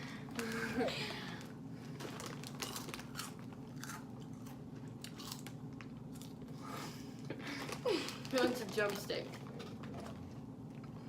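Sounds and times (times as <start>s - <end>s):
crunchy snack chewing: 2.0s - 6.6s.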